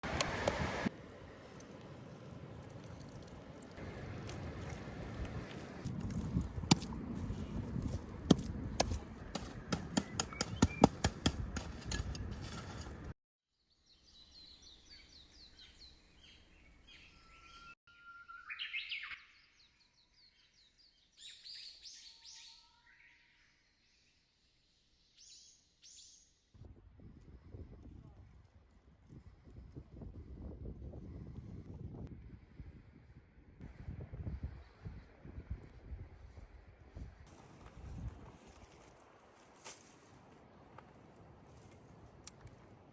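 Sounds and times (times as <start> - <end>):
small birds chirping: 9.9 - 11.1.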